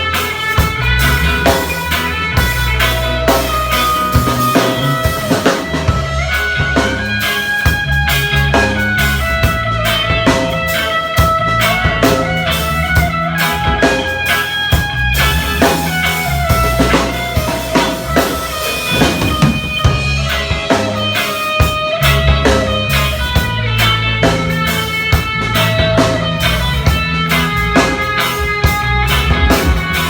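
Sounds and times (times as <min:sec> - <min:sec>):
band playing instrumental: 0:00.0 - 0:30.0
bass notes: 0:00.0 - 0:30.0
drum kit beat: 0:00.0 - 0:30.0
guitar: 0:00.0 - 0:30.0.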